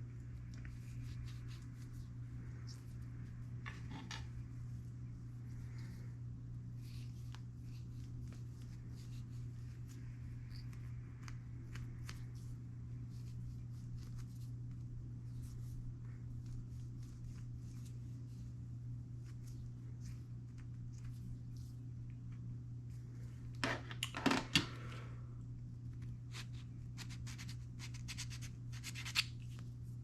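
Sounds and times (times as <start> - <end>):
steady low hum: 0.0 - 30.0
file scratching bead: 26.4 - 29.3.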